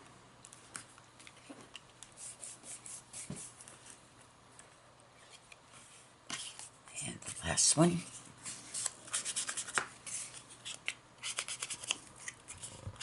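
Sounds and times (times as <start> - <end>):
paper and card rustling: 5.3 - 13.0.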